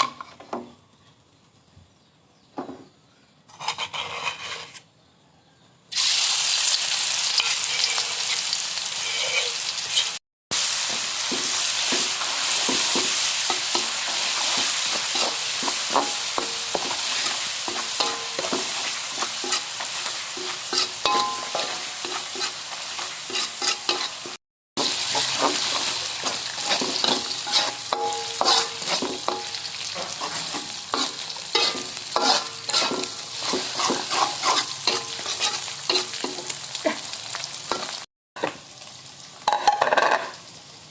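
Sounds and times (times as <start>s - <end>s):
spatula scraping a pan: 3.5s - 4.9s, 7.4s - 10.2s, 10.8s - 36.6s
rice sizzling in a hot pan: 5.9s - 40.9s.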